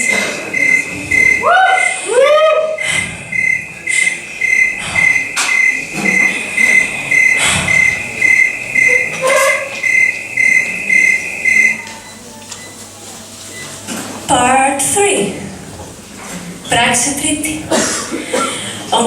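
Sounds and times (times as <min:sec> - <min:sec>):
high even beeping: 0:00.0 - 0:12.3
faint scattered noises: 0:00.0 - 0:19.0.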